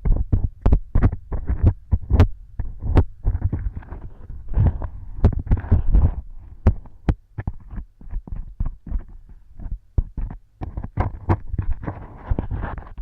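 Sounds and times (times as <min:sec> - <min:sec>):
dull low thuds: 0:00.0 - 0:11.6
sharp clicks and crackles: 0:00.0 - 0:13.0.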